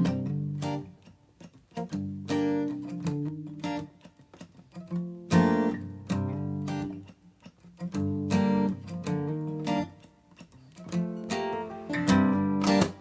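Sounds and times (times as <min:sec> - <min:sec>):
acoustic guitar strummed chords: 0:10.9 - 0:13.0.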